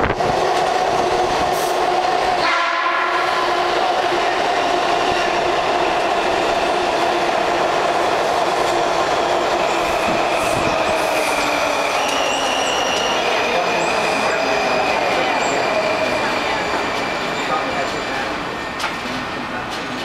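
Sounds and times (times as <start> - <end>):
train wheels rumbling on rail: 0.0 - 20.0
high wheel squeal: 11.7 - 16.4.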